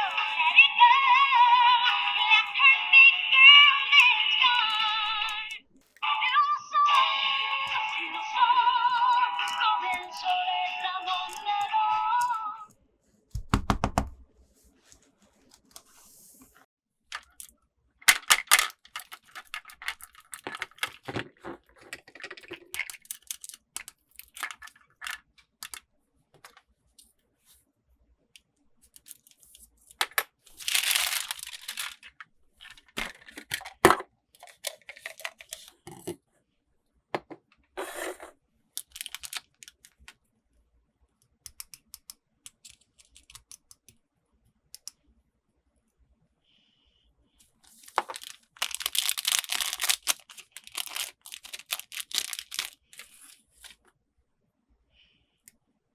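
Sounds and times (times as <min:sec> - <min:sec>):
small plastic pieces clicking: 0:04.0 - 0:06.0, 0:09.4 - 0:10.4, 0:17.1 - 0:25.8, 0:28.8 - 0:35.8, 0:38.8 - 0:40.2, 0:41.5 - 0:44.0, 0:47.9 - 0:53.8
wrapping tearing and crinkling: 0:18.1 - 0:21.1, 0:22.1 - 0:25.2, 0:29.0 - 0:33.6, 0:38.8 - 0:40.1, 0:47.7 - 0:53.8.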